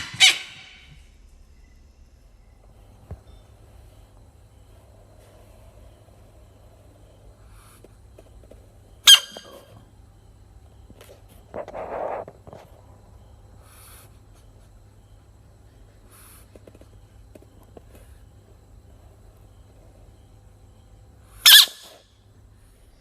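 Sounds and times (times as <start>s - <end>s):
breathy hiss: 2.7s - 8.1s, 13.4s - 17.2s
frog squeak: 9.0s - 9.7s, 21.4s - 22.0s.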